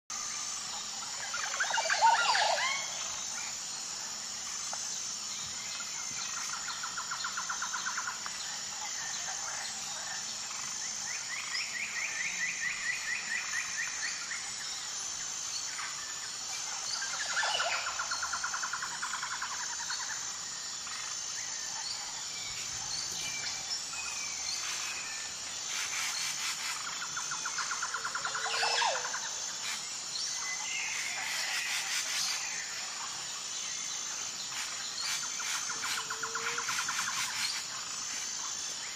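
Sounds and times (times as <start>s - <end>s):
rapid rattling bird trills: 15.5s - 33.1s, 34.4s - 38.1s.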